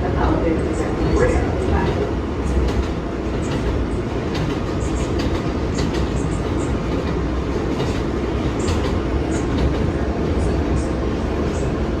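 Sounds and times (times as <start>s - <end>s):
subway car rumble: 0.0s - 12.0s
wheels clicking over rail joints: 1.7s - 9.9s.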